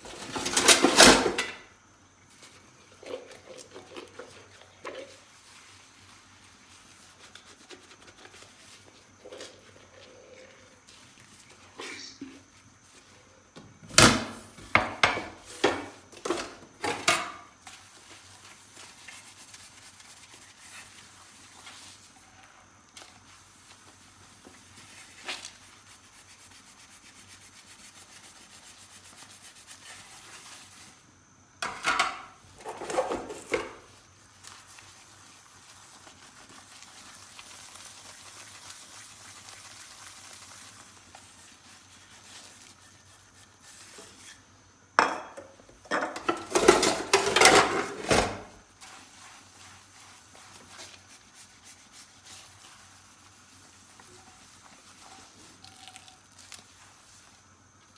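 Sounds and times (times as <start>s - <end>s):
dishes clinking and knocking: 0.1s - 1.6s, 13.9s - 17.4s, 31.6s - 33.8s, 45.0s - 48.5s.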